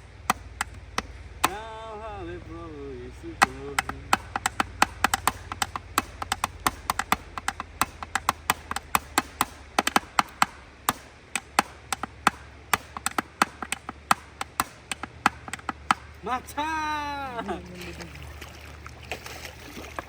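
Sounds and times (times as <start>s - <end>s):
hard objects clicking together: 3.4s - 16.2s.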